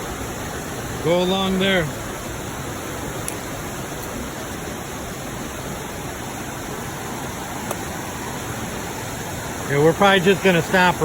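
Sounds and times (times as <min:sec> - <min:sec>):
creek water rushing: 0:00.0 - 0:11.0
waterfalls: 0:00.0 - 0:11.0.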